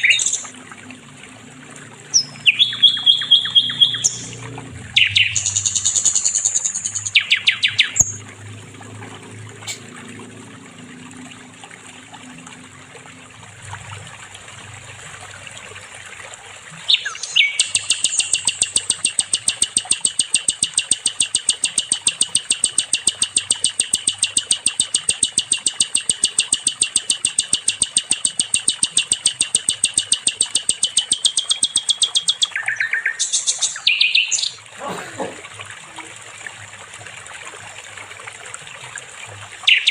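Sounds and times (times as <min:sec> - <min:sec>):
rapid high bird trill: 0:00.0 - 0:00.5, 0:02.1 - 0:04.4, 0:05.0 - 0:08.2, 0:16.9 - 0:34.6, 0:39.7 - 0:39.9
songbird singing: 0:00.0 - 0:00.5, 0:02.0 - 0:08.2, 0:16.9 - 0:34.9, 0:39.6 - 0:39.9.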